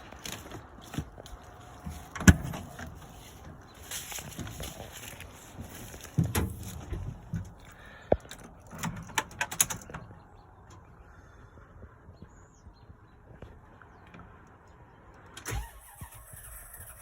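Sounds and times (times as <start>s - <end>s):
sharp clicks and knocks: 6.1s - 10.8s.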